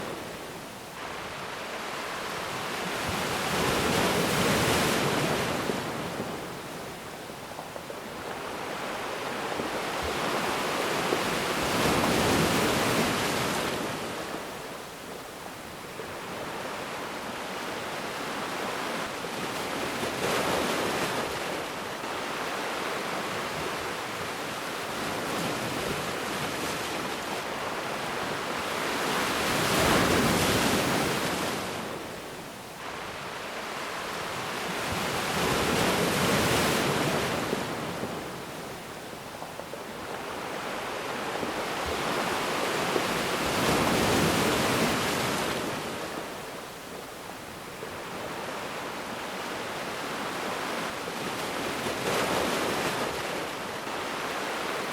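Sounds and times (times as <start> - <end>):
ocean waves breaking on beach: 0.0 - 54.9.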